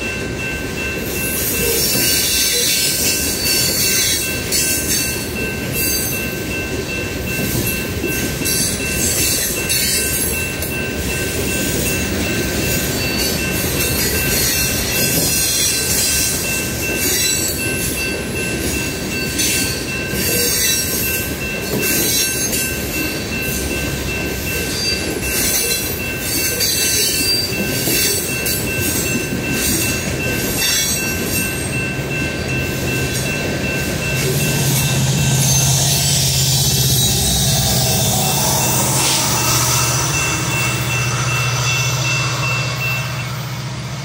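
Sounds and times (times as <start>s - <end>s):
diesel locomotive drone: 0.0s - 44.0s
freight wheels rumbling on rail: 0.0s - 44.0s
high-pitched wheel squeal: 34.2s - 43.5s.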